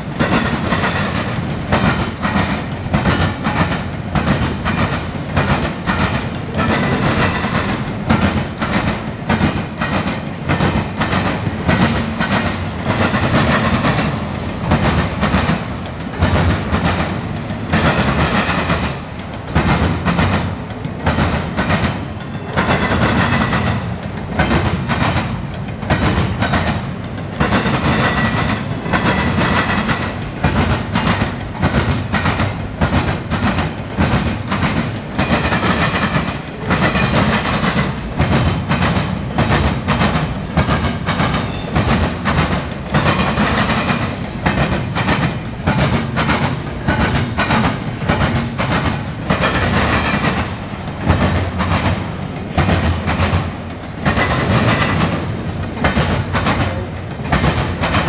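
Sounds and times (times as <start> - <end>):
freight train rumble: 0.0 - 58.0
wheels clattering over rail joints: 0.2 - 58.0
high wheel squeal: 44.1 - 44.6.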